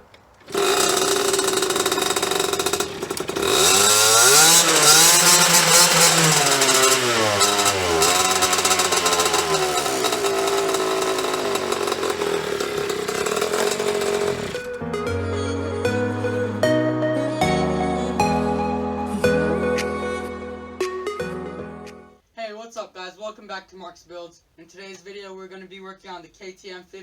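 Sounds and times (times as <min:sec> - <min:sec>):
dirt bike engine revving: 0:00.4 - 0:14.8.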